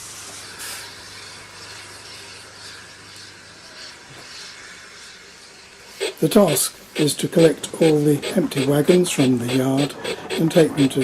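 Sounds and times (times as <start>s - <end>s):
model locomotive steam hiss: 0.0s - 11.0s.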